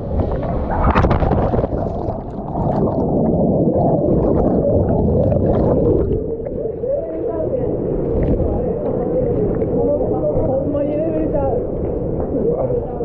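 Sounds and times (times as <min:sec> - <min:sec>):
splash going underwater: 0:00.0 - 0:06.8, 0:08.0 - 0:08.7
muffled underwater river rushing: 0:00.0 - 0:13.0.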